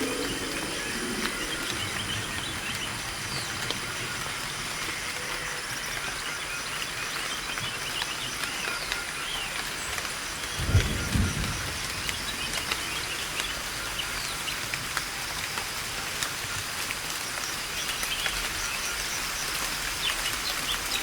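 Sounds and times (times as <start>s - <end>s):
steady hiss: 0.0s - 6.7s.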